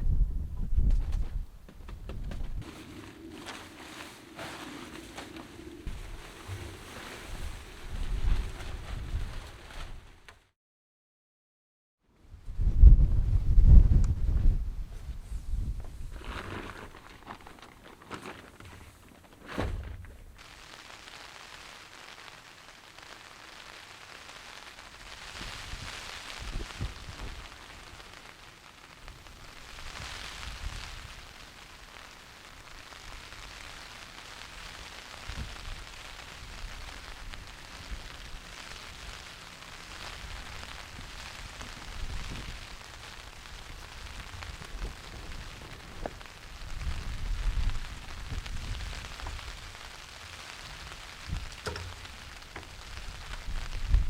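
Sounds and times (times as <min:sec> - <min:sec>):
rain pattering: 0:02.5 - 0:10.4, 0:20.3 - 0:54.0.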